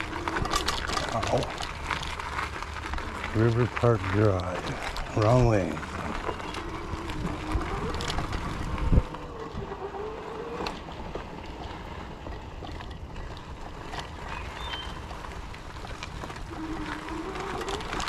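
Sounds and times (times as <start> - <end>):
tyre rumble: 0.0 - 18.0
wind: 0.0 - 18.0
electric motor whine: 5.1 - 11.5.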